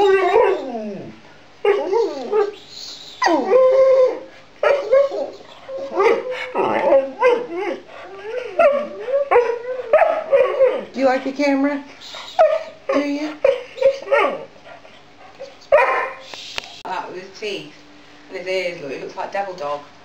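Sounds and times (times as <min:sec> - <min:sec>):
dog whining and yowling: 0:00.0 - 0:11.0, 0:12.0 - 0:14.6, 0:15.3 - 0:16.3.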